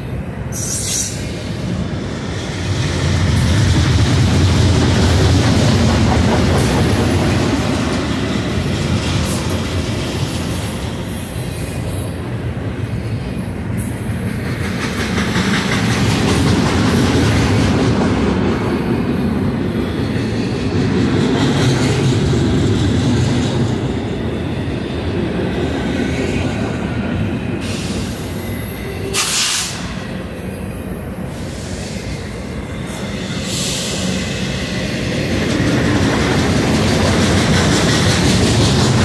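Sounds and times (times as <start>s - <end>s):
freight train wheels rumbling: 0.0s - 39.0s
short hissing burst: 29.2s - 29.8s.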